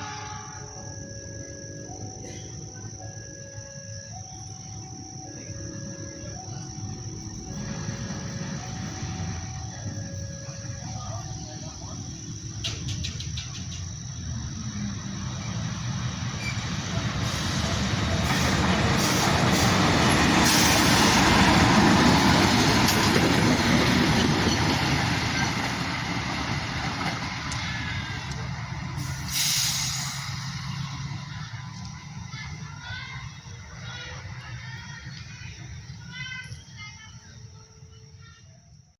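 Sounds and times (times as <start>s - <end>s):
train wheels on rails: 7.1s - 36.3s
short hiss: 29.0s - 30.6s.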